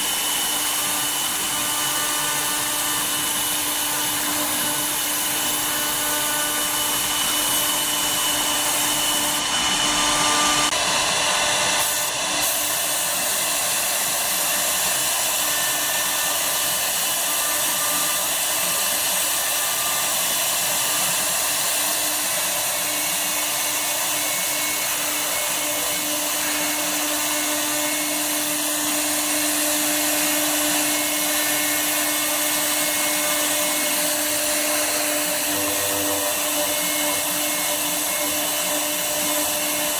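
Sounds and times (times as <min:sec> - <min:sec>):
router spindle whining: 0:00.0 - 0:39.9
rushing hiss of wood machining: 0:00.0 - 0:39.9.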